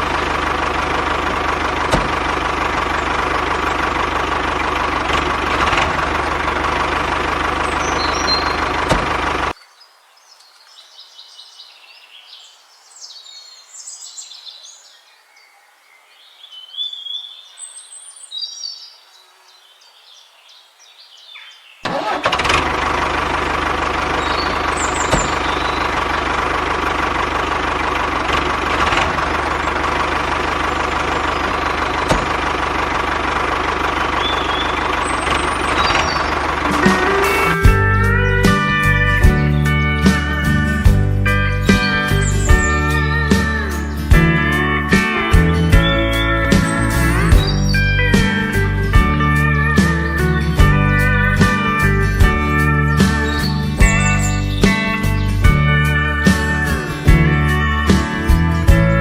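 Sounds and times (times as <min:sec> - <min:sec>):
birds chirping: 0:00.0 - 0:59.0
machine drone with high whine: 0:23.2 - 0:39.4.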